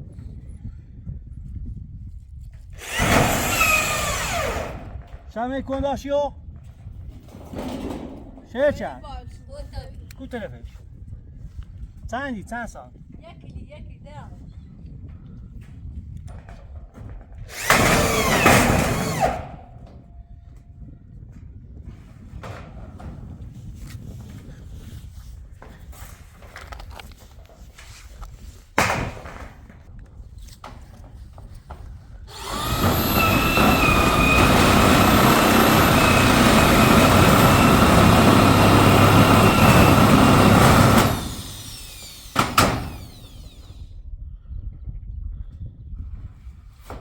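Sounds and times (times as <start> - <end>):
small motorised tool running: 2.8 - 4.9, 17.5 - 19.5, 32.3 - 43.9.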